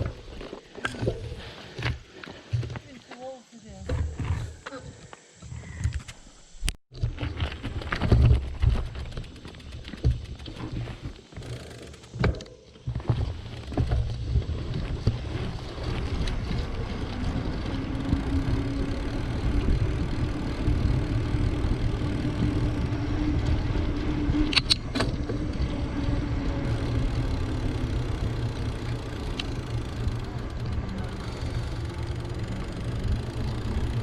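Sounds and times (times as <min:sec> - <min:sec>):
bicycle tyre noise on road: 0:00.0 - 0:02.7, 0:05.5 - 0:34.0
wind rumbling on microphone: 0:12.9 - 0:34.0
sharp clicks: 0:28.8 - 0:31.0.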